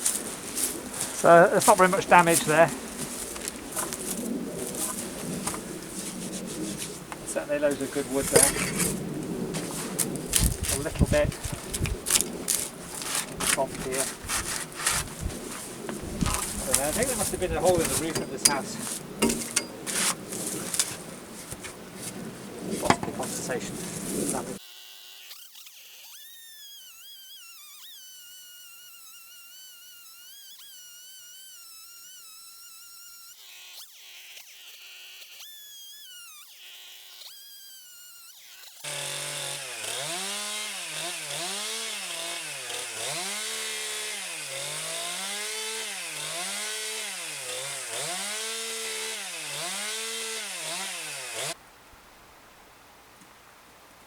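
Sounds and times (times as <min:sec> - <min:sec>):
chainsaw cutting timber: 0:00.0 - 0:24.6, 0:36.2 - 0:51.6.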